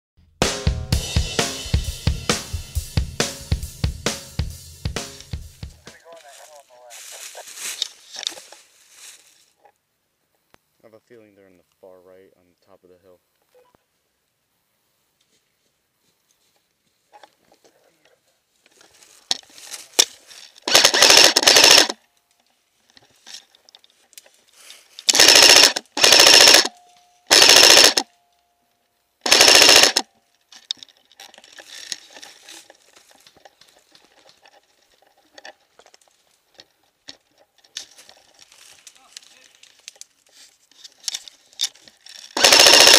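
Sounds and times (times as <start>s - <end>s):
faint rustling and crunching: 5.8s - 14.0s, 14.8s - 20.7s, 22.0s - 25.1s, 30.1s - 42.4s
airsoft rifle full-auto bursts: 20.6s - 22.0s, 25.1s - 26.7s, 27.3s - 28.1s, 29.2s - 30.1s, 42.4s - 42.9s.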